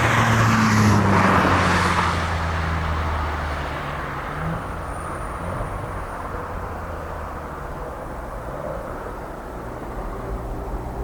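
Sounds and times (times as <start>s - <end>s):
jet engines rumbling: 0.0s - 3.7s.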